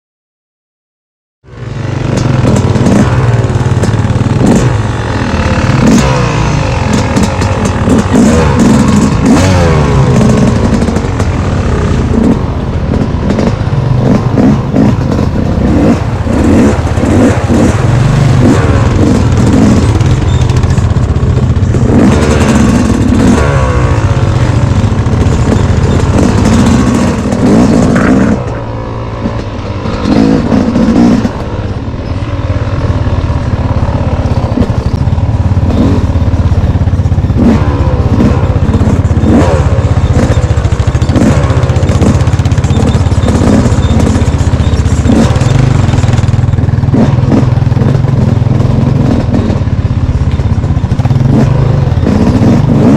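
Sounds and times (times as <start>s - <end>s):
dirt bike engine revving: 1.5s - 52.9s.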